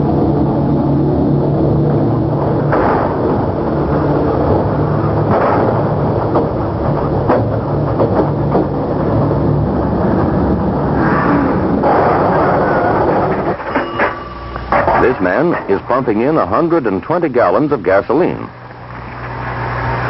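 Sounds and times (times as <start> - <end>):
truck engine droning: 0.0 - 20.0
sharp knocks and clanks: 2.4 - 10.5, 11.7 - 17.2.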